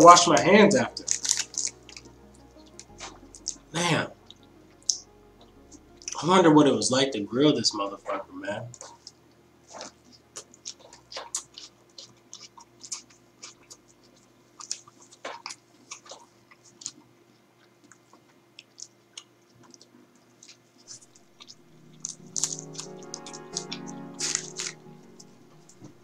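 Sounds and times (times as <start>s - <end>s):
person chewing with mouth smacks: 8.8s - 22.6s.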